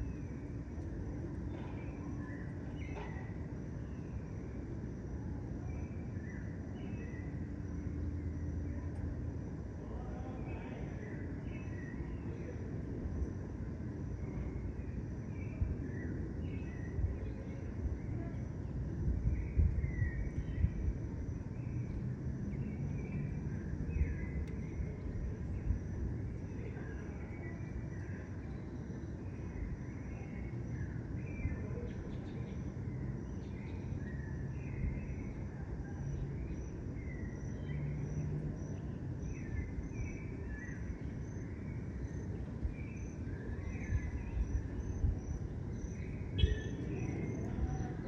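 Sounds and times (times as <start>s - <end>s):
low continuous rumble: 0.0s - 48.0s
small birds chirping: 14.3s - 48.0s
pulsing insect trill: 32.4s - 48.0s.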